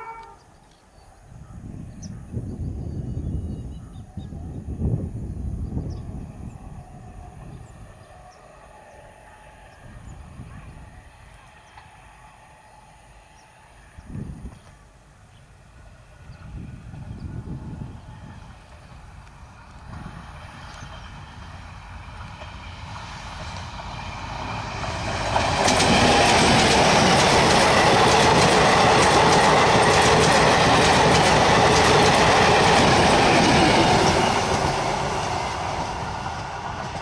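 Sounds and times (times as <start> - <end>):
train wheels clattering on track: 11.3 - 12.4, 18.5 - 37.0.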